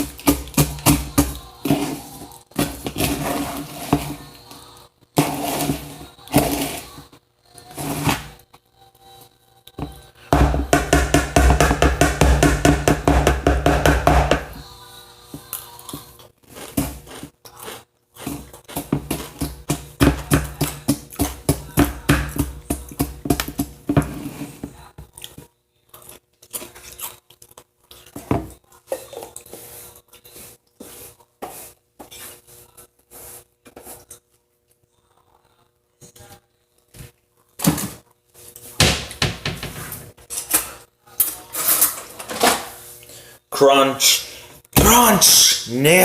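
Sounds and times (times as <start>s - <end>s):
crunchy chewing of cereal: 15.4s - 21.8s, 24.3s - 35.6s.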